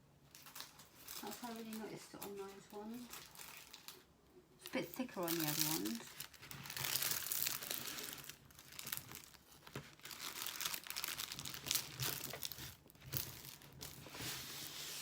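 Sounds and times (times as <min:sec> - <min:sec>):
plastic packaging crinkling: 0:00.3 - 0:15.0.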